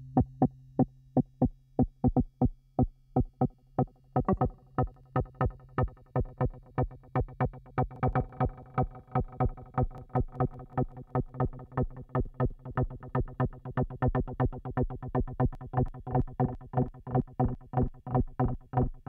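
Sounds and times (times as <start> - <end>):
synthesizer bassline: 3.2 - 14.7.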